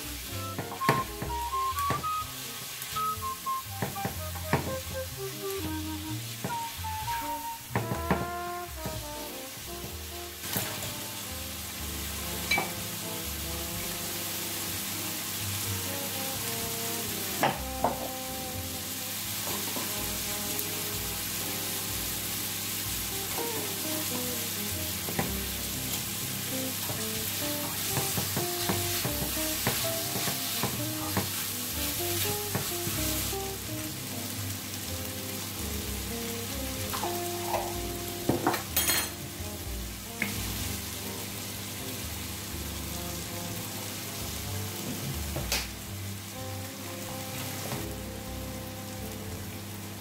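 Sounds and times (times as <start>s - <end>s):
food sizzling in a frying pan: 0.0s - 50.0s
stirring knocks against a pan: 3.8s - 4.7s, 7.7s - 9.0s, 27.7s - 31.4s, 32.2s - 32.9s.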